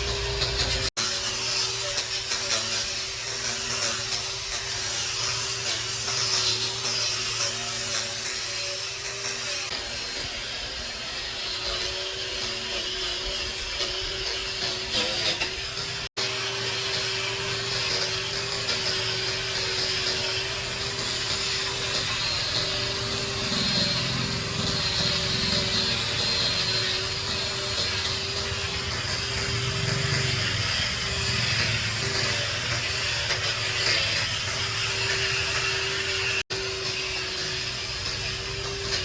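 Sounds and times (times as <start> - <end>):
power tool humming: 0.0 - 39.0.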